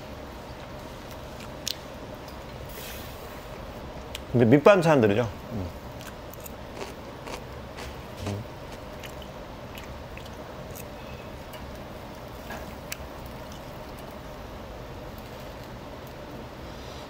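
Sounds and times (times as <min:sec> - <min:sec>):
background hum: 0:00.0 - 0:17.0
person chewing: 0:05.8 - 0:14.2.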